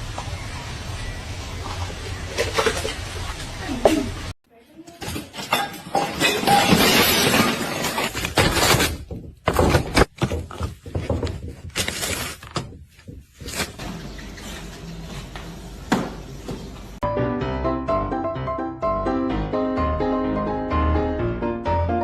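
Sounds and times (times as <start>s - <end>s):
crashing clatter of breaking: 5.0s - 12.8s
knocks and clatters: 5.0s - 14.3s.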